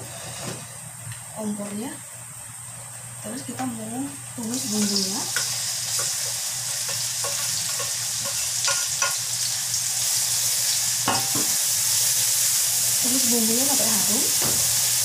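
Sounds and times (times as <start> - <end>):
vegetables sizzling in hot oil: 4.4 - 15.0.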